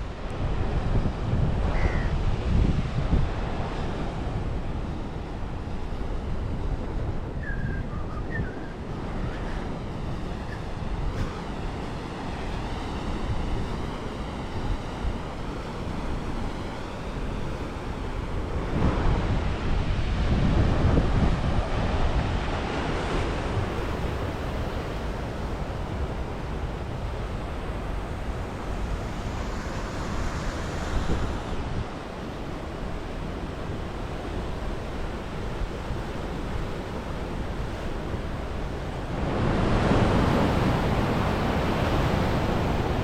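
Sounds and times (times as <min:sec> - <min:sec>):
wind buffeting microphone: 0:00.0 - 0:43.0
sea waves washing onto shore: 0:08.8 - 0:43.0.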